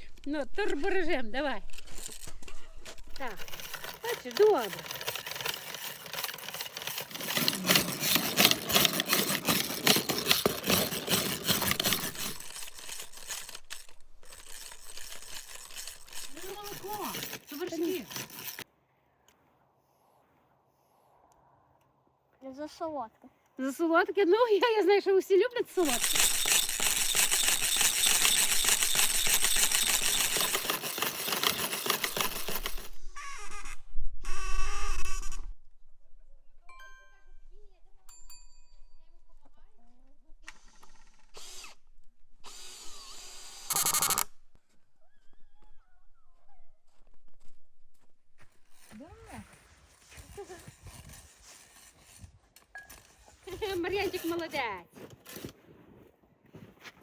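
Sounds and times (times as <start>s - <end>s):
hand whisk clinking in a pot: 25.7s - 32.9s.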